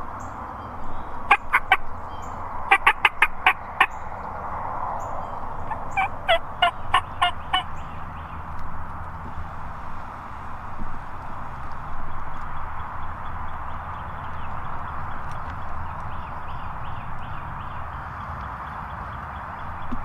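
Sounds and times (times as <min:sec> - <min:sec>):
wild turkey calling: 0:00.0 - 0:04.3, 0:05.0 - 0:08.3.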